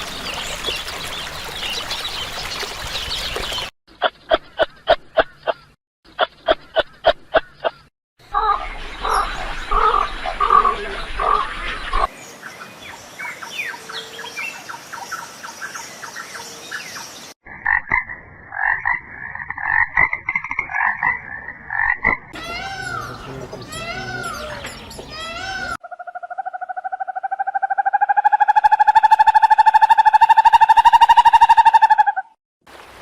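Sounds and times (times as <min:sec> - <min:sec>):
arched animal calls: 0:08.3 - 0:12.1, 0:21.8 - 0:32.4.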